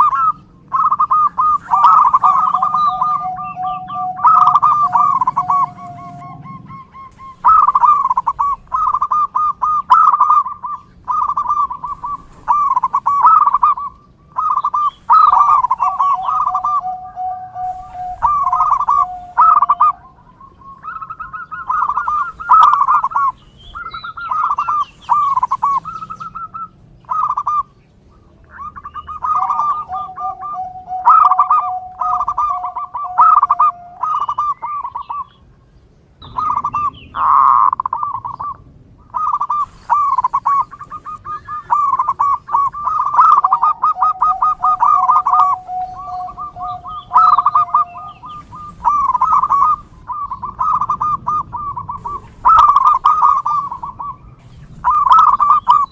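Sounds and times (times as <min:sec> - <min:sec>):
dove cooing: 0:00.0 - 0:27.8, 0:28.5 - 0:35.5, 0:36.2 - 0:55.9
long low steady note: 0:15.4 - 0:20.3.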